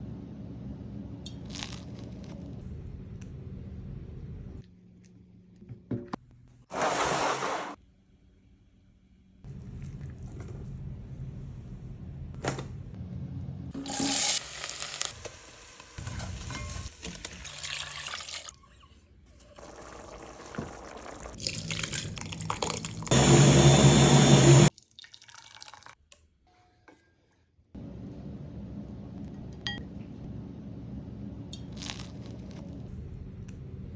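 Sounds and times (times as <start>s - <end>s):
kitchen cooking sounds: 0.4s - 7.8s, 9.5s - 33.9s
liquid sounds: 17.2s - 23.1s.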